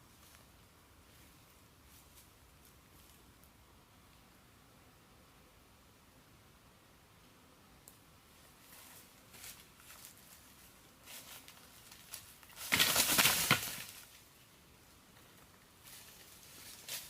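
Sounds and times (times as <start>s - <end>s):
crackling rustling: 8.6s - 14.3s, 15.2s - 17.0s
faint rustles: 15.1s - 17.0s.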